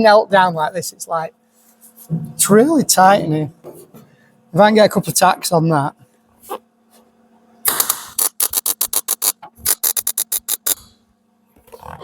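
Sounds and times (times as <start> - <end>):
electric welder crackling: 7.6 - 10.9.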